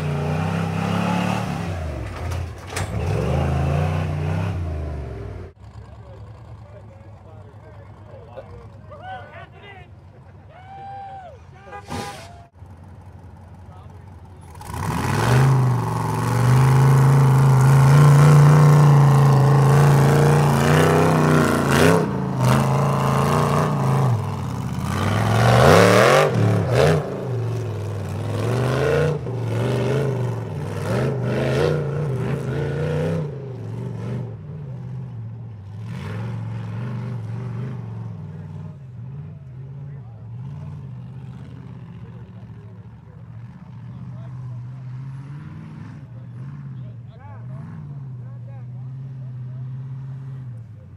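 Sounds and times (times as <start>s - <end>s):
truck engine revving hard: 0.0s - 5.6s, 14.4s - 42.6s, 43.4s - 50.6s
clatter: 1.8s - 3.4s.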